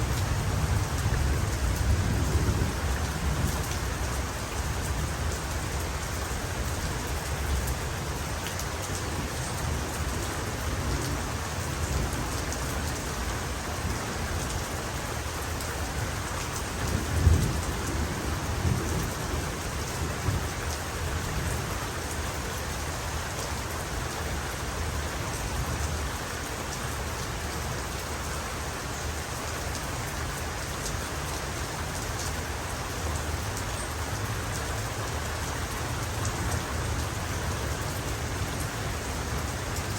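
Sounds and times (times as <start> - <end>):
low rumble of thunder: 0.0 - 8.4, 9.0 - 15.0, 16.0 - 21.9
heavy rain falling: 0.0 - 39.9.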